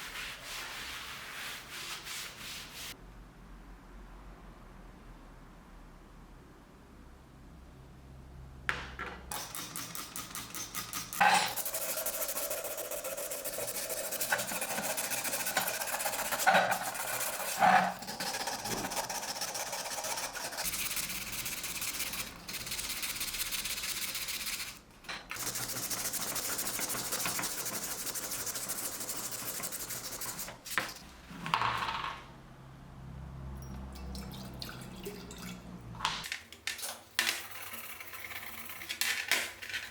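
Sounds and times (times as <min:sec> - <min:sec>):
abrasive rubbing and rasping: 0:11.3 - 0:21.0.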